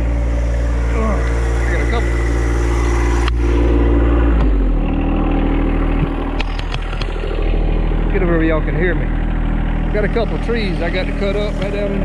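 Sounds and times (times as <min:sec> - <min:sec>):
tractor engine idling: 0:00.0 - 0:12.0
sharp clicks and knocks: 0:05.9 - 0:07.4.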